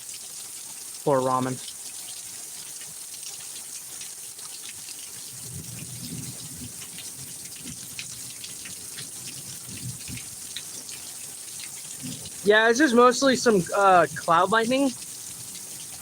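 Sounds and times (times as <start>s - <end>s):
water running and splashing: 0.0s - 16.0s
heavy rain pouring: 1.0s - 1.6s, 11.3s - 16.0s.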